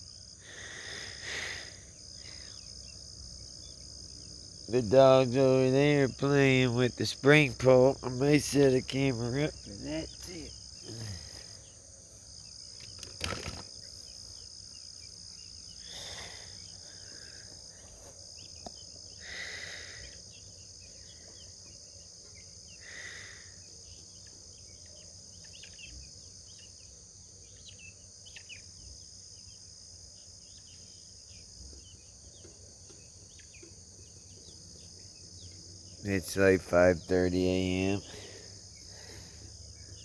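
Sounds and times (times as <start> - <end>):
crickets chirping: 0.0 - 40.0
bird chirps: 23.8 - 28.9.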